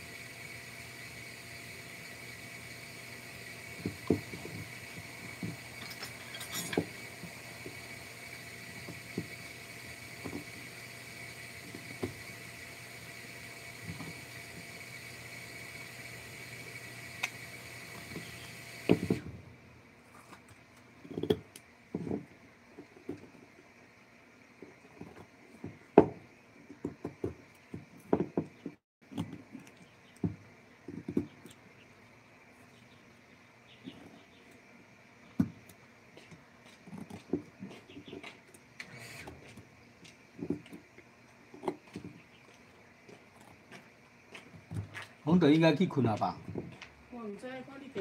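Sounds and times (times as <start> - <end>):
whirring with high whine: 0.0 - 19.4
hard objects knocking: 25.0 - 29.4.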